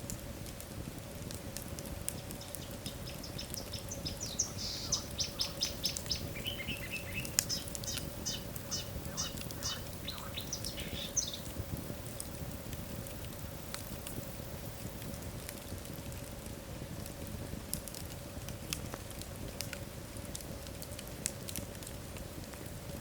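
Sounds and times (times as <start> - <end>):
wood fire crackling: 0.0 - 23.0
high chirping notes: 3.0 - 11.5.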